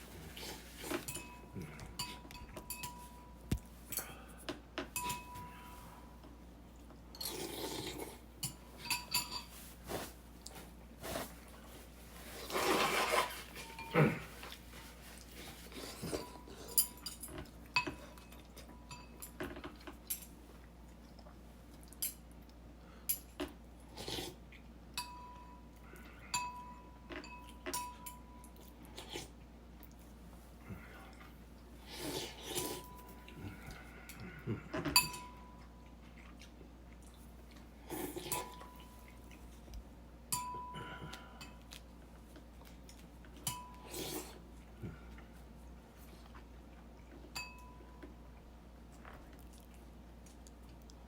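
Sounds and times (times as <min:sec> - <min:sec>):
dishes and cutlery clinking: 0:00.7 - 0:04.1, 0:04.8 - 0:05.7, 0:08.4 - 0:10.2, 0:12.5 - 0:14.6, 0:15.4 - 0:20.4, 0:26.3 - 0:28.3, 0:34.8 - 0:35.6, 0:43.4 - 0:43.8, 0:47.3 - 0:47.8.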